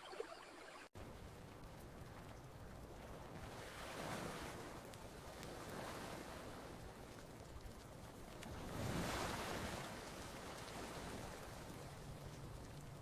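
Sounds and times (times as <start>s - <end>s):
faint campfire crackles: 0.2s - 13.0s
ocean wave breaking: 8.6s - 11.7s.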